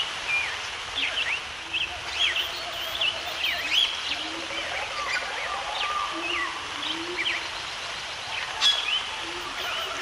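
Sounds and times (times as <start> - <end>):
background hiss: 0.0 - 10.0
birds chirping: 8.6 - 10.0.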